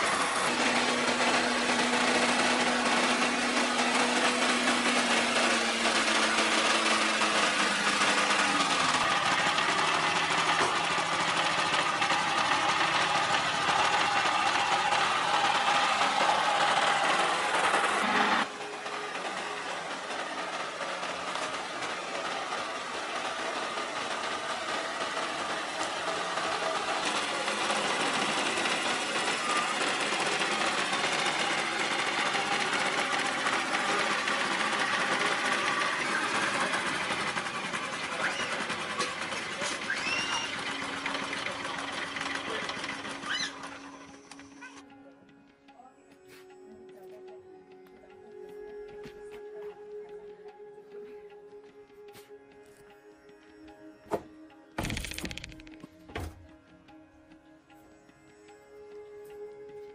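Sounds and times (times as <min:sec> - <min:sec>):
machine humming: 0:00.0 - 0:45.8.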